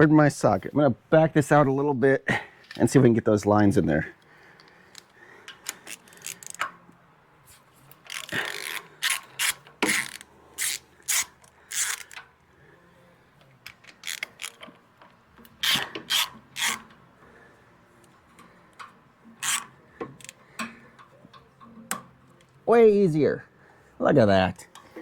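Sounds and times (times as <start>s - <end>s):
socket ratchet wrench clicking: 4.9s - 6.7s, 8.1s - 12.3s, 13.7s - 14.7s, 15.5s - 17.0s, 18.0s - 22.5s.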